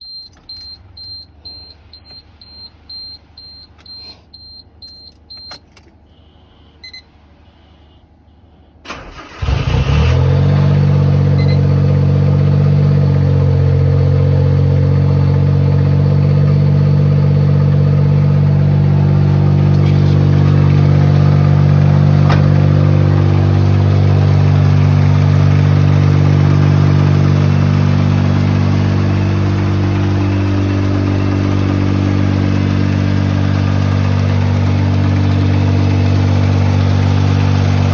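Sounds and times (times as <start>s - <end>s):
short high electronic beeps: 0.0s - 5.6s
car engine starting and idling: 8.8s - 37.9s.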